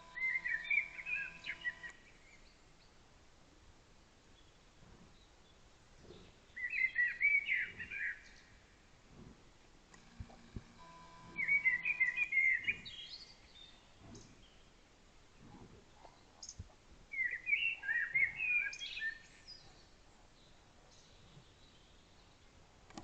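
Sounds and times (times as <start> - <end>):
songbird twittering: 0.0 - 2.6, 6.1 - 8.6, 10.0 - 14.7, 16.4 - 19.9.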